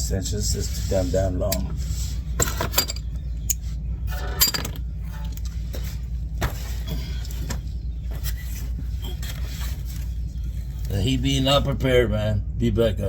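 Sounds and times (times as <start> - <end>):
steady low hum: 0.0 - 13.0
metal hand tools clinking: 2.4 - 5.4.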